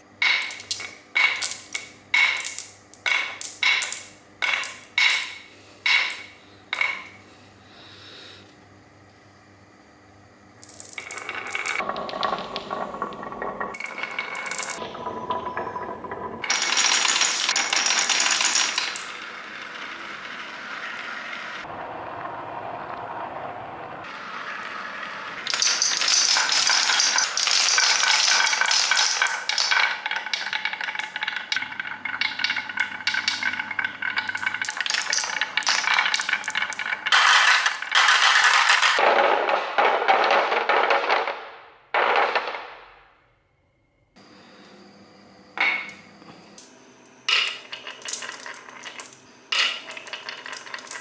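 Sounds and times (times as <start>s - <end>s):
marbles rattling on a track: 0.0s - 7.1s, 10.6s - 21.7s, 25.3s - 42.6s, 47.3s - 51.0s.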